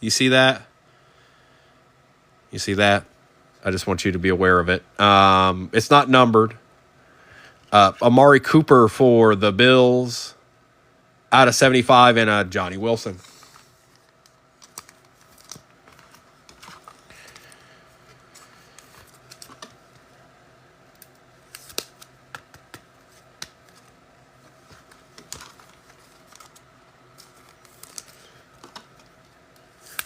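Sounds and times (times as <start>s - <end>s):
card snaps: 21.0s - 23.9s
trading cards clicking and tapping: 21.0s - 23.9s.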